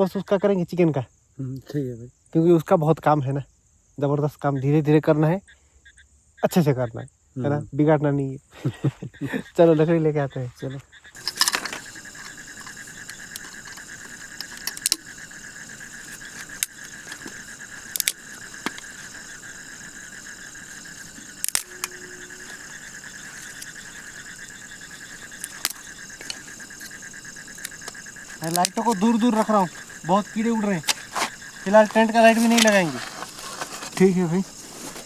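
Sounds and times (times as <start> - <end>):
crickets chirping: 0.0 - 35.0
sharp clicks and knocks: 11.2 - 35.0.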